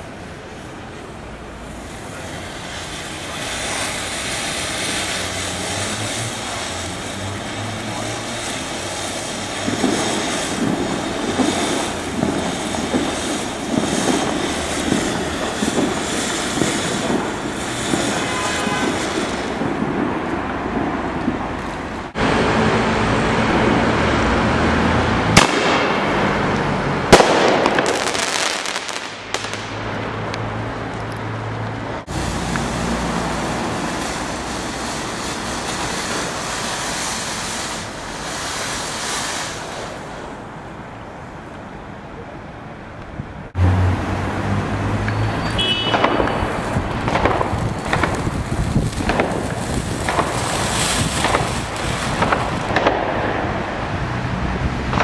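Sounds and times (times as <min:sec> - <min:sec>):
ground fountain firework crackling: 0:00.0 - 0:55.0
aerial firework bangs: 0:07.2 - 0:21.4, 0:25.3 - 0:29.8, 0:45.6 - 0:53.8.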